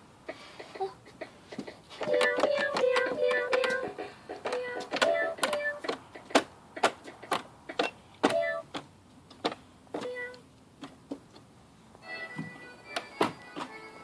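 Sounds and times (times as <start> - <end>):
toy piano electronic notes: 2.0 - 5.9, 8.2 - 8.7, 10.0 - 10.4.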